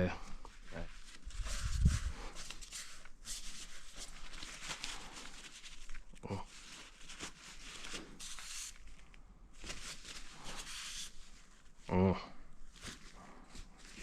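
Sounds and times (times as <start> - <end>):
soft material rustling and rubbing: 0.2 - 14.0.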